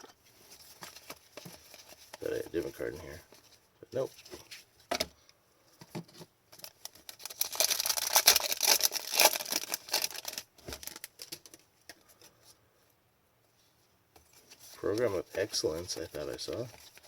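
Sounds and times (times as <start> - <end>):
cards rustling and flicking: 14.3 - 17.0.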